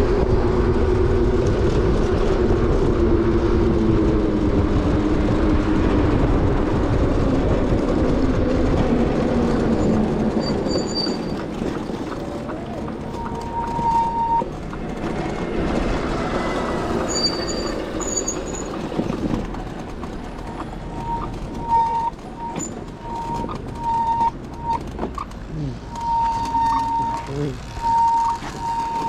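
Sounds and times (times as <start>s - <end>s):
electronic beeps: 12.0s - 14.5s, 20.9s - 29.0s.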